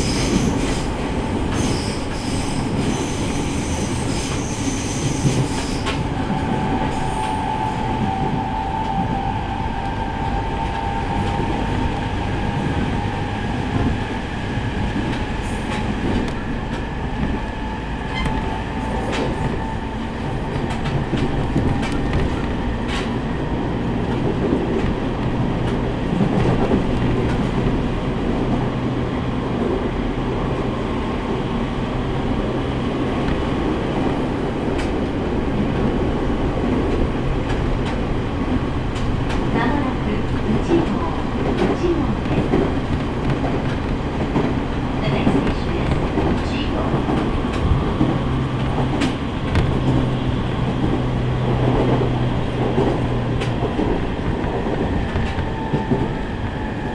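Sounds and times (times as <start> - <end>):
train wheels rumbling on rail: 0.0 - 56.9
clicks at rail joints: 41.4 - 56.6.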